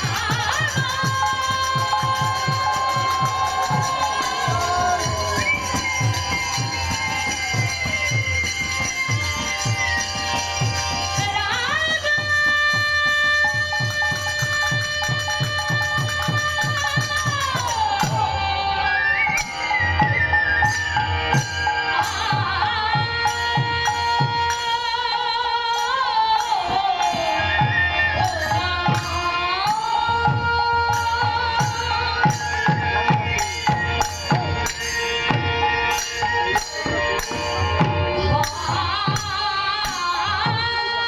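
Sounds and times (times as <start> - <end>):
person singing long sliding notes: 0.0 - 9.5
drum strokes: 0.0 - 11.4
jingling percussion: 0.0 - 41.0.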